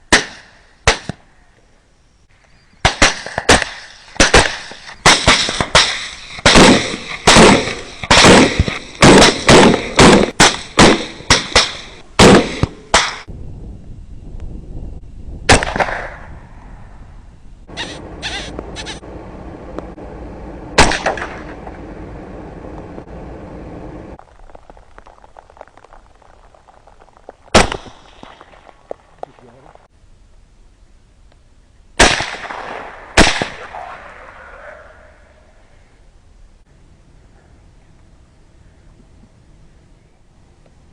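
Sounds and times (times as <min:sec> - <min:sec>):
faint steady hum: 0:00.0 - 0:40.9
rapid gunfire: 0:02.8 - 0:13.3.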